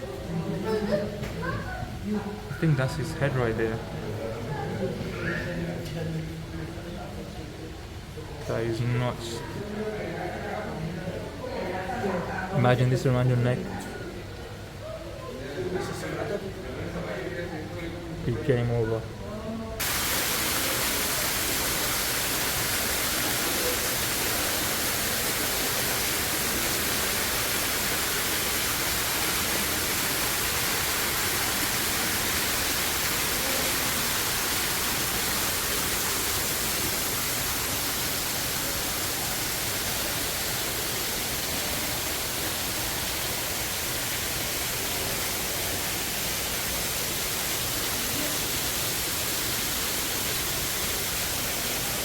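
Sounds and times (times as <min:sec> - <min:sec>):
steady rushing hiss: 0:19.8 - 0:52.0.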